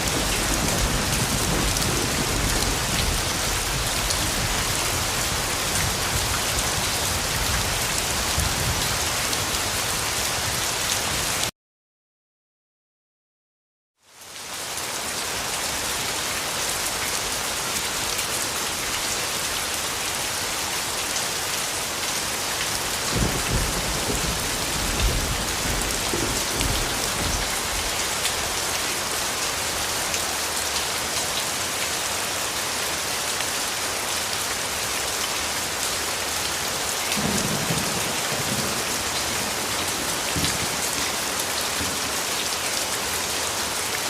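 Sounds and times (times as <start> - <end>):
thunder rumbling: 0.0 - 7.8, 23.1 - 27.9
heavy rain falling: 0.0 - 11.5, 14.1 - 44.0.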